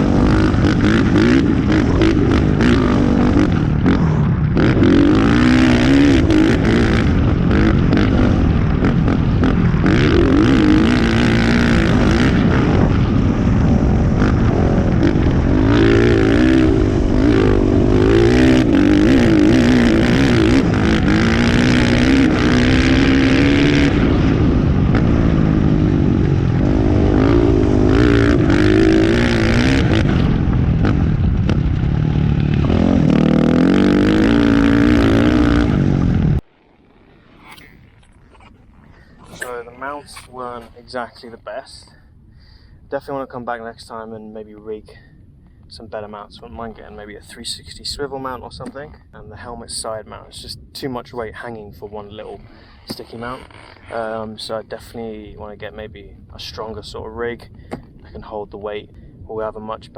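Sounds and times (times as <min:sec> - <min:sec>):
motocross bike engine revving: 0:00.0 - 0:41.0.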